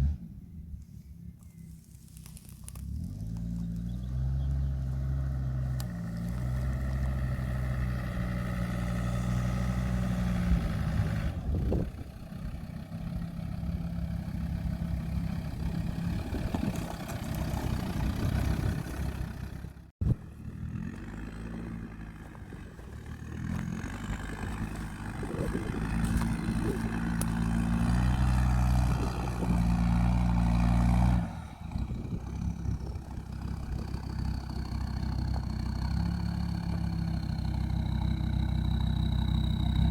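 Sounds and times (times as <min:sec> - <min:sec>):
diesel engine revving off-road: 0:00.0 - 0:00.6, 0:02.2 - 0:39.9.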